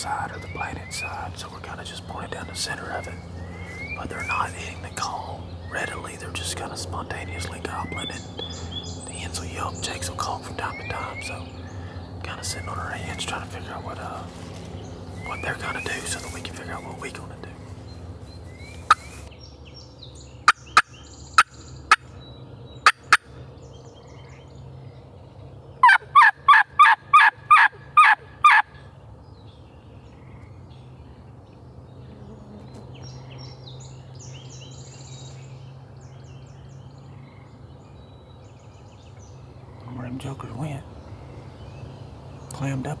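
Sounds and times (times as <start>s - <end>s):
hen turkey yelps: 25.8s - 28.7s
turkey clucks: 25.8s - 28.7s.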